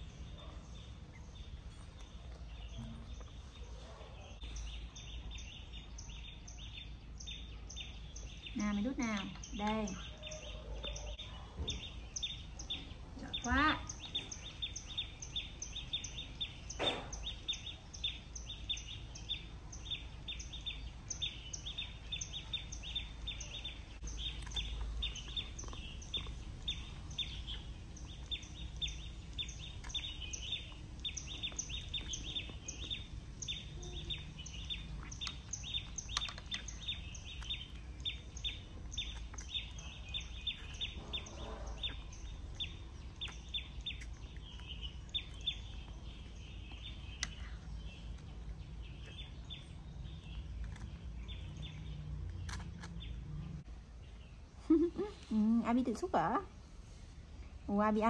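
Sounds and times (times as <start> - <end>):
low background rumble: 0.0 - 58.0.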